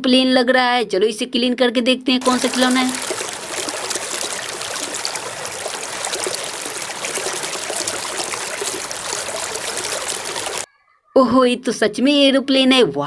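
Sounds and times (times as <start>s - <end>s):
water running and splashing: 2.2s - 10.7s.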